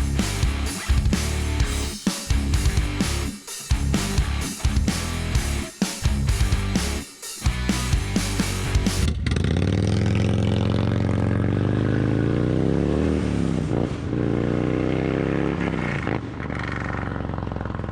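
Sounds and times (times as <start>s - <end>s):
rock music: 0.0s - 9.1s
motorcycle accelerating through gears: 8.7s - 17.9s.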